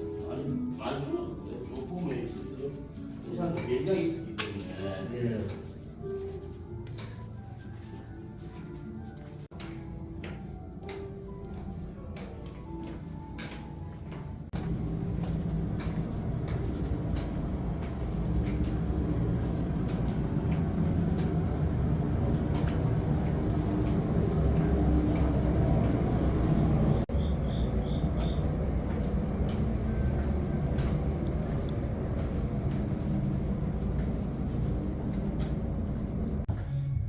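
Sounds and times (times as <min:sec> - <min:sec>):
vehicle rumble: 0:14.4 - 0:37.0.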